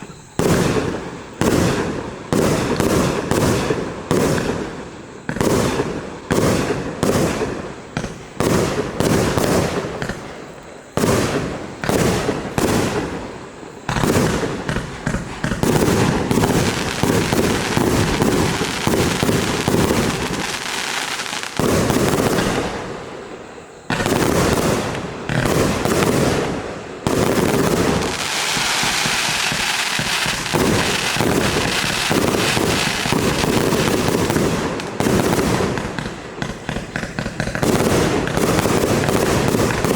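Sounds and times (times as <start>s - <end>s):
firework cake firing shots: 13.9s - 23.1s, 23.9s - 39.9s.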